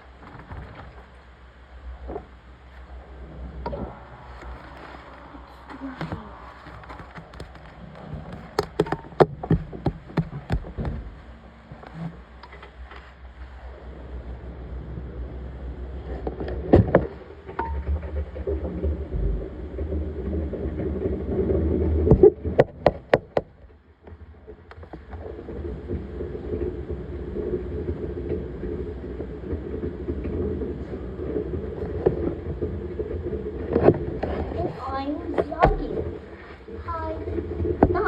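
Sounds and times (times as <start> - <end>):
laundry machine humming: 0.0 - 16.1.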